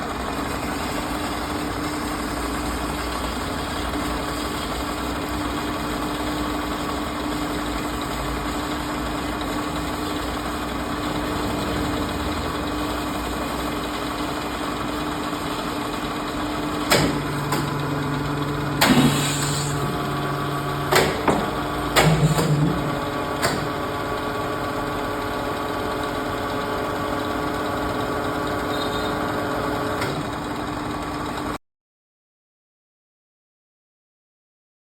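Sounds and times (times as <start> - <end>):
bandsaw humming: 16.6 - 23.7
sharp knocks: 20.9 - 22.7.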